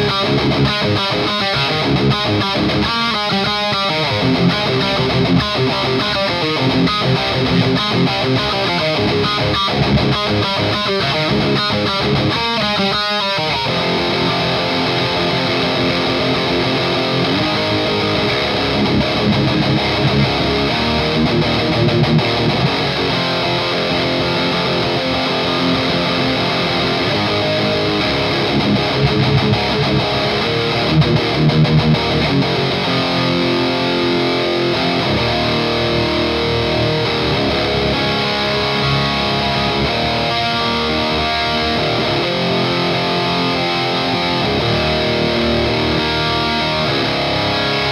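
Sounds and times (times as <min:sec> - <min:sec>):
distorted electric guitar riffing: 0:00.0 - 0:47.9.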